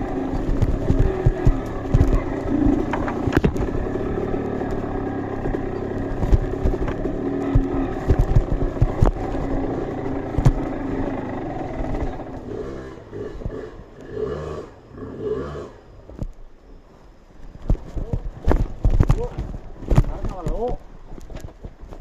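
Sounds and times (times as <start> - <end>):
motorcycle engine running: 0.0 - 15.2
knocks and clatter: 0.3 - 10.7.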